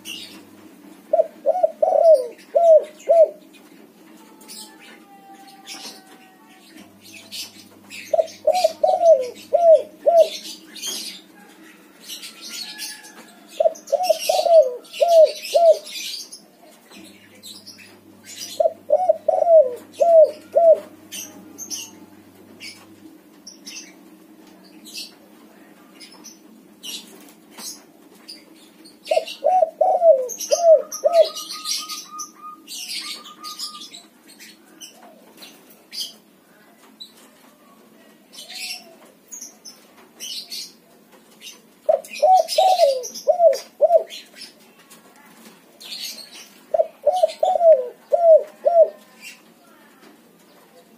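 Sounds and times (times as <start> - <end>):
dove cooing: 0.0 - 3.5, 7.1 - 16.2, 18.3 - 22.9, 29.0 - 34.1, 41.9 - 44.3, 46.7 - 49.1.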